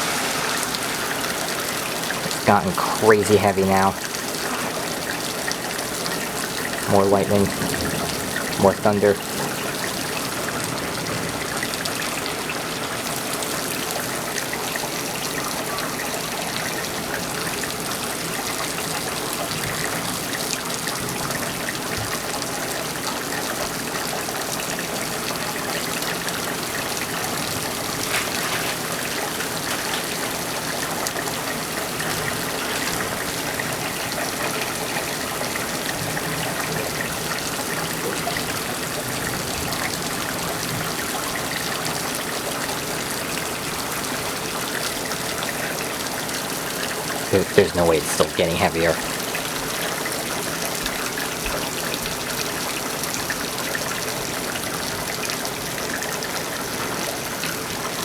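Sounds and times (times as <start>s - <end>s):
heavy rain hissing: 0.0s - 13.3s, 47.0s - 49.2s
water gushing from gutters: 0.0s - 58.0s.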